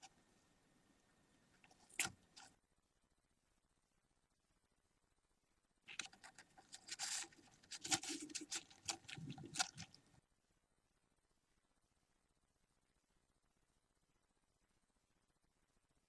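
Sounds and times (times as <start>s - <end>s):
budgie chicks scratching and rustling: 1.6s - 2.6s, 5.9s - 10.2s.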